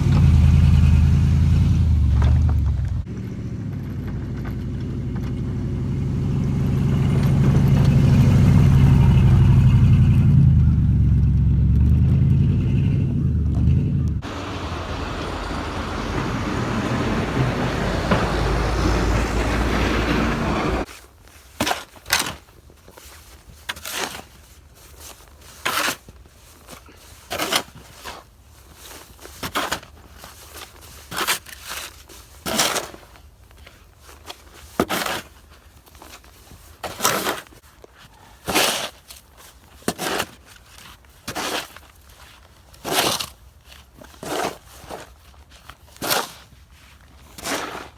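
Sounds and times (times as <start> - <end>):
vehicle driving on snowy road: 0.0 - 20.9
crunching scrapes in snow: 14.2 - 47.9.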